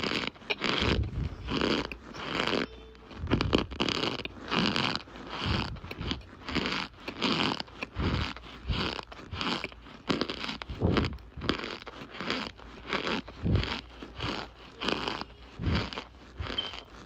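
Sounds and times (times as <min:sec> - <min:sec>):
cornstarch squeaky crunch: 0:00.0 - 0:17.0.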